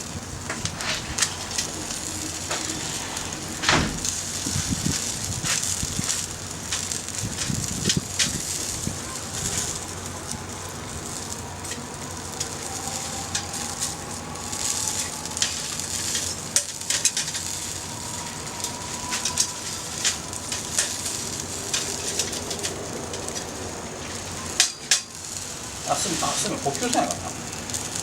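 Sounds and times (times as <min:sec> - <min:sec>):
sausages sizzling on a grill: 0:00.0 - 0:28.0
wood fire crackling and popping: 0:00.0 - 0:28.0
faint thin whistle: 0:14.6 - 0:21.3.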